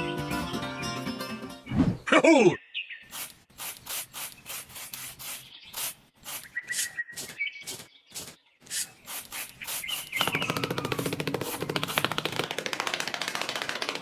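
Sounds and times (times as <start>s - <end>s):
rapid rubbing or scraping: 7.2s - 14.0s.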